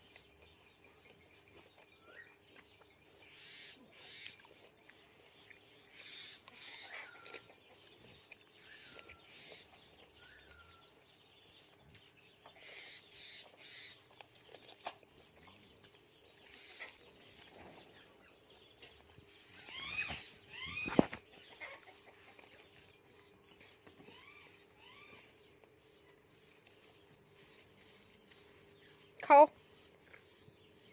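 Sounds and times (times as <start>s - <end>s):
parrot chirping and clucking: 0.1s - 29.1s.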